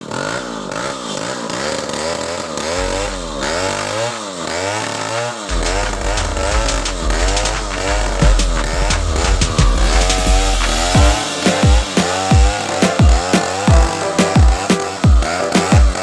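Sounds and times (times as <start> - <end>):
chainsaw engine revving: 0.0 - 7.1
deep electronic music bass: 2.8 - 4.0, 5.5 - 16.0.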